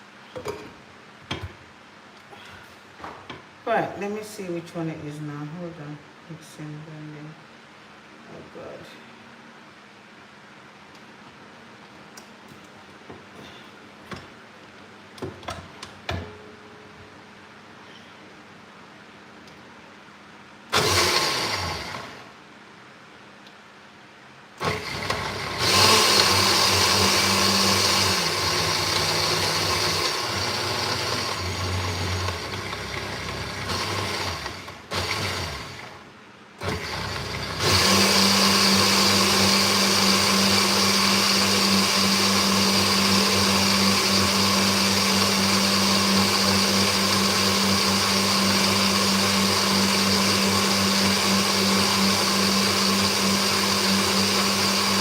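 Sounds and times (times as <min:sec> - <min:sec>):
electric blender running: 0:20.7 - 0:22.3, 0:24.6 - 0:55.0.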